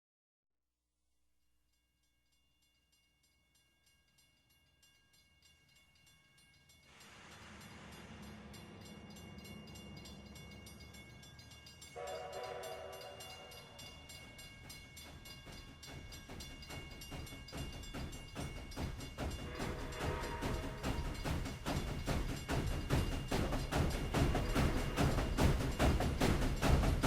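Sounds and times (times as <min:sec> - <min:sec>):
train rumbling: 0:06.8 - 0:27.0
multi-tone train whistle: 0:11.9 - 0:14.4, 0:19.3 - 0:21.4, 0:24.0 - 0:26.1.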